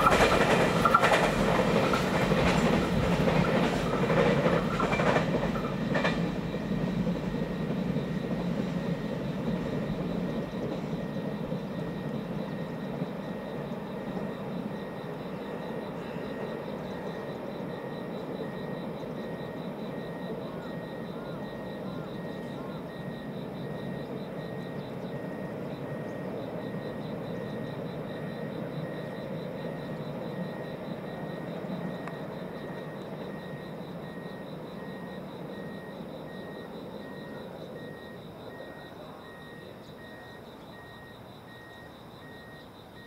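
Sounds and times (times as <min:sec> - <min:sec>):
freight train rumbling: 0:00.0 - 0:43.0
electronic beep: 0:31.3 - 0:43.0.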